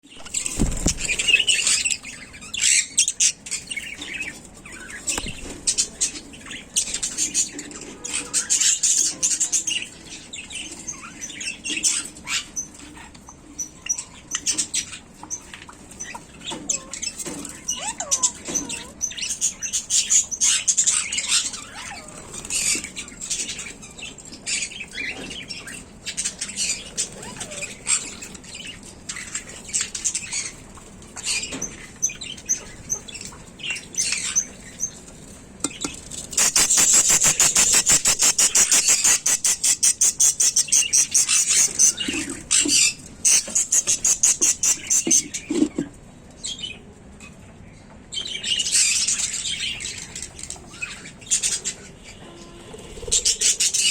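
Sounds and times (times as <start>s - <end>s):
small animals scratching and rustling: 0.2s - 2.8s, 20.5s - 46.0s.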